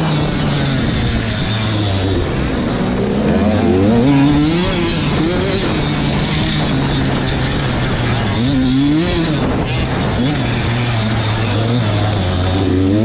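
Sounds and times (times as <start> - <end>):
motocross bikes racing: 0.0 - 13.0.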